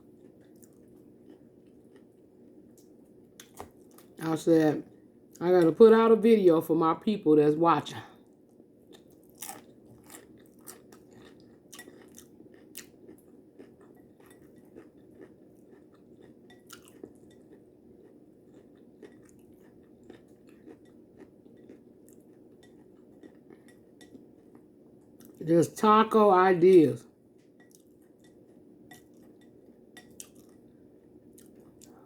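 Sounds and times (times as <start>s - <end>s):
person chewing crunchy food: 0.0s - 4.2s, 8.9s - 25.4s, 27.6s - 32.0s.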